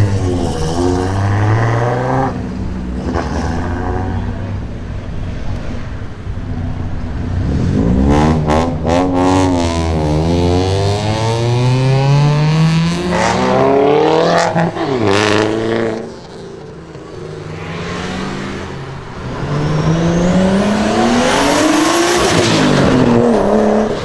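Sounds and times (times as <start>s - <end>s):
car engine revving: 5.8s - 24.0s.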